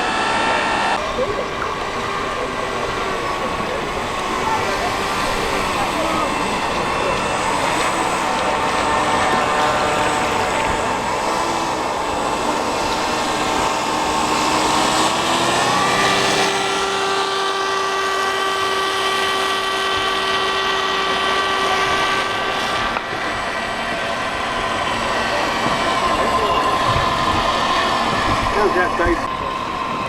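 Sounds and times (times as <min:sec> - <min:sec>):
small electric motor whining: 0:00.0 - 0:30.0.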